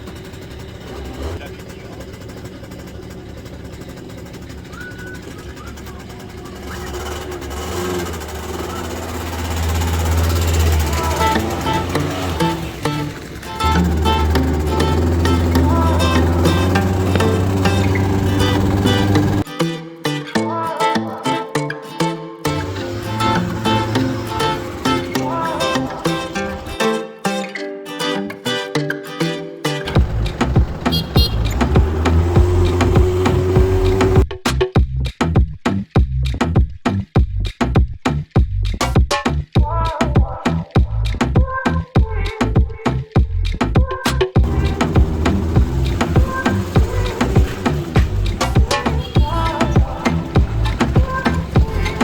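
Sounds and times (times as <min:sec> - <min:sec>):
scooter engine humming: 0:00.0 - 0:19.5, 0:22.4 - 0:26.9, 0:29.8 - 0:34.3, 0:44.4 - 0:52.0
acoustic guitar picking: 0:06.7 - 0:34.2, 0:44.4 - 0:52.0.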